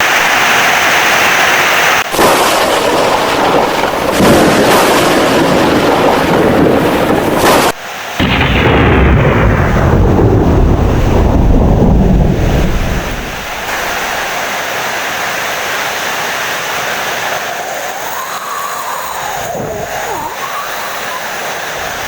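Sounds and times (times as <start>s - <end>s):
heavy rain: 0.0s - 22.0s
thunder rumbling: 2.1s - 14.5s.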